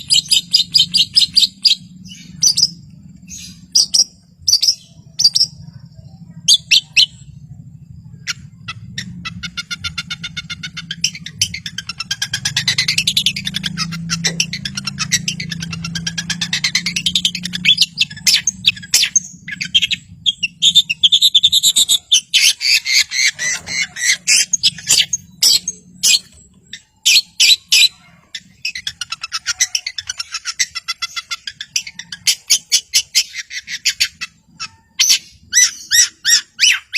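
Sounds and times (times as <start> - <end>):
bird singing trills and calls: 0.0 - 36.9.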